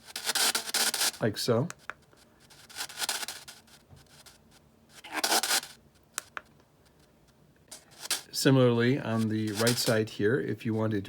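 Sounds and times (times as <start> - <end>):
radio static bursts: 0.0 - 1.2
sharp clicks: 6.2 - 6.5.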